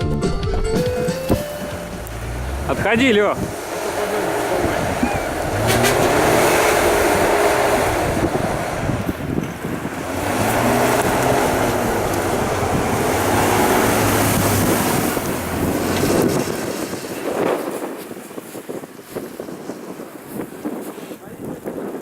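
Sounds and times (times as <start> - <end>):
off-road vehicle engine revving: 1.0 - 18.0
rushing wind and churned snow: 1.4 - 22.0.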